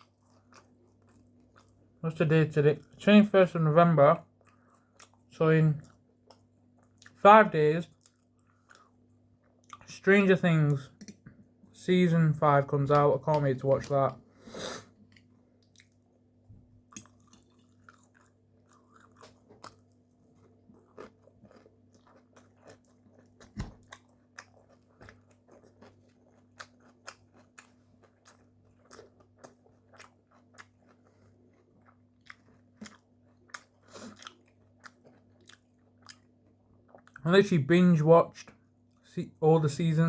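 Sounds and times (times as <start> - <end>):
chewing and biting food: 0.0 - 1.8, 4.2 - 7.2, 7.9 - 9.9, 15.0 - 16.1, 16.8 - 37.2.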